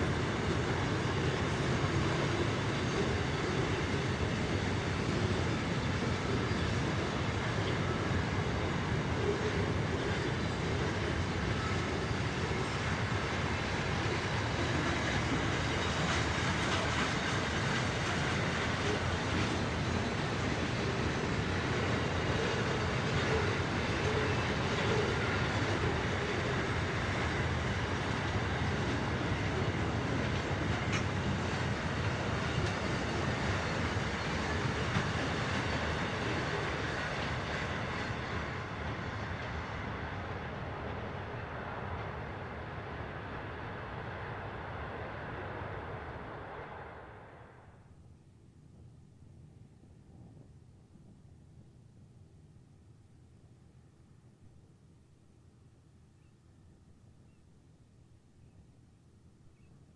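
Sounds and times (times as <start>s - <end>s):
freight train wheels rumbling: 0.0s - 47.8s.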